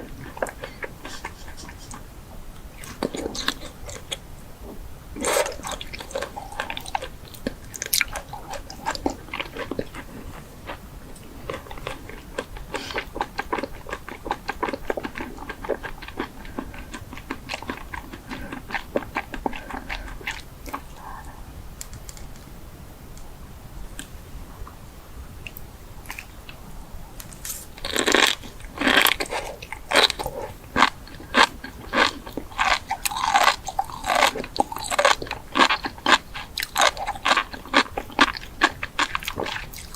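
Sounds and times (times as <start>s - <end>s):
crunchy food chewing: 0.0s - 22.4s, 25.4s - 26.6s, 27.2s - 39.9s.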